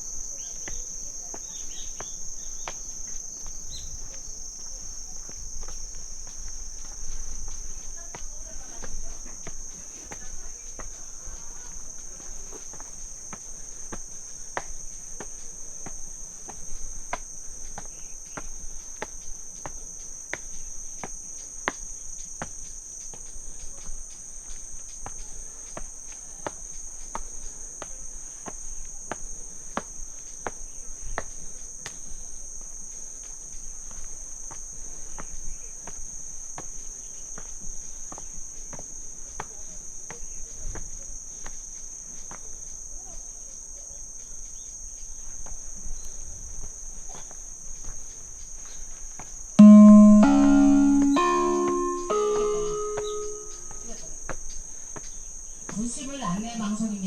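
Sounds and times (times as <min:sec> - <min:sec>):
footsteps on a path: 0:00.0 - 0:38.9
crickets singing: 0:00.0 - 0:39.0, 0:39.6 - 0:49.6, 0:50.4 - 0:57.0.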